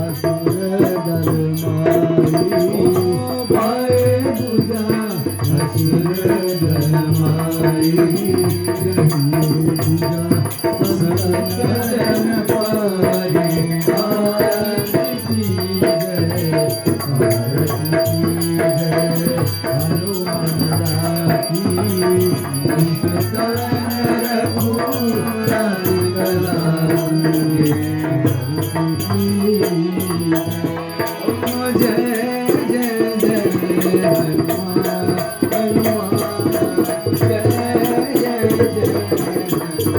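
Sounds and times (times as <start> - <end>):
hand percussion: 0.0 - 39.9
devotional hymn singing: 18.4 - 39.9.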